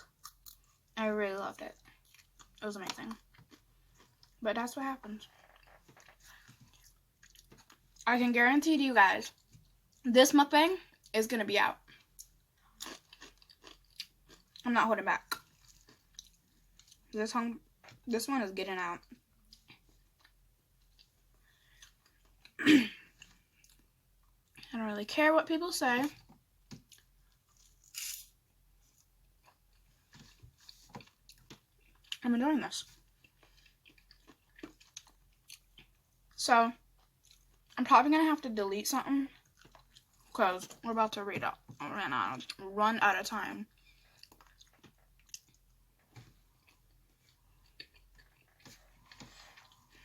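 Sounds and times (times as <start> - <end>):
chewing and mouth clicks: 0.0 - 1.0, 1.7 - 4.4, 5.2 - 8.0, 11.9 - 17.1, 19.4 - 22.6, 28.9 - 32.2, 32.8 - 37.8, 39.3 - 40.3, 43.7 - 50.0.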